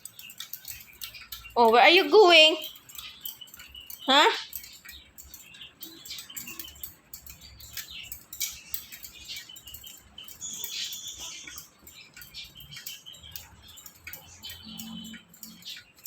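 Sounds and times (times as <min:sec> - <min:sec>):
parrot clicks and scratches: 0:00.0 - 0:16.0
parrot high chirp: 0:10.3 - 0:13.6.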